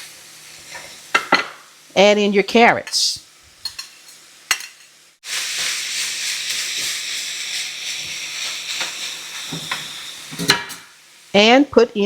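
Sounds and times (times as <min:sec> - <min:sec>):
food sizzling in a skillet: 0:00.0 - 0:12.0.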